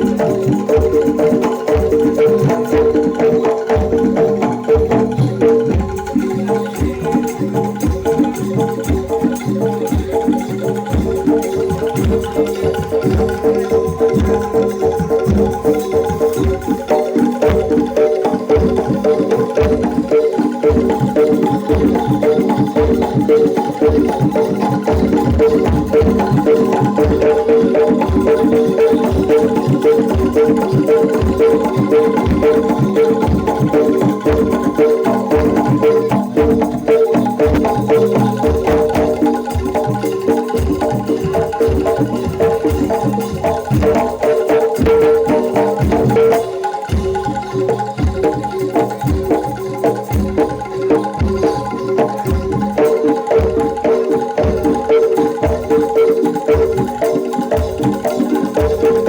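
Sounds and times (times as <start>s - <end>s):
gamelan metal instruments melody: 0.0s - 59.0s
steady drum beat: 0.0s - 59.0s
pitched chimes pattern: 11.6s - 43.7s.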